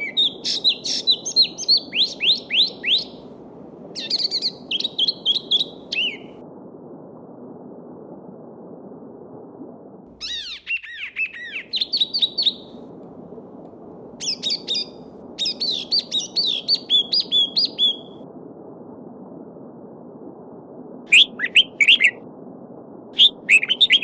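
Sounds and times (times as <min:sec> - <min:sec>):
songbird singing: 0:00.0 - 0:03.3, 0:04.0 - 0:06.4, 0:10.2 - 0:12.8, 0:14.2 - 0:18.2.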